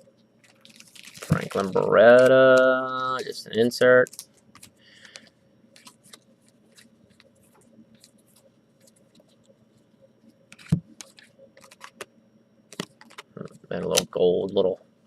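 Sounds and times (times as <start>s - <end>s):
trading cards clicking and scraping: 4.0s - 9.5s, 10.6s - 12.1s, 12.8s - 14.0s.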